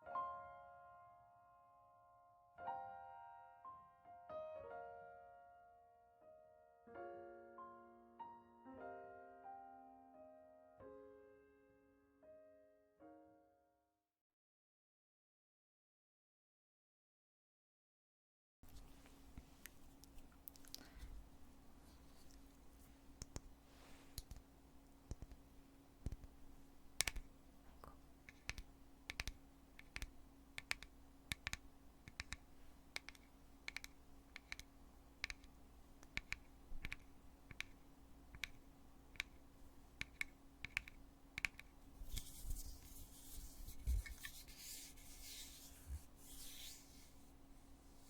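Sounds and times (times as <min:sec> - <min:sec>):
scratchy rubbing: 0:40.0 - 0:48.0.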